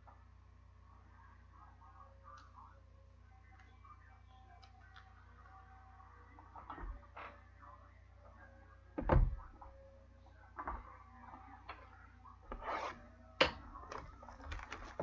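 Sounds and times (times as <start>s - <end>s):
cards and boxes handled on table: 12.5s - 15.0s.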